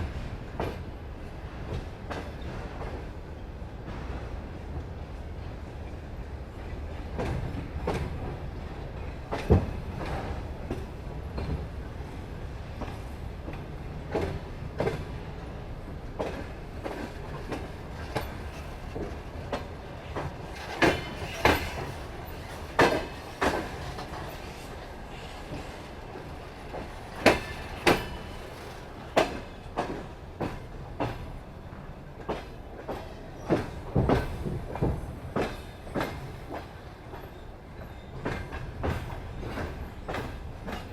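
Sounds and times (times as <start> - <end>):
train wheels clickety-clack: 0.0 - 40.9.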